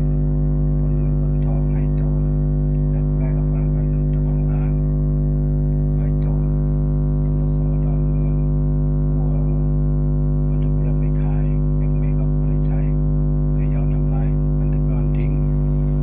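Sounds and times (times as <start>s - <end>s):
faint voices: 0.0s - 5.0s, 5.8s - 6.7s, 7.3s - 8.5s, 9.1s - 9.8s, 10.5s - 13.0s, 13.6s - 16.0s
loud droning hum: 0.0s - 16.0s.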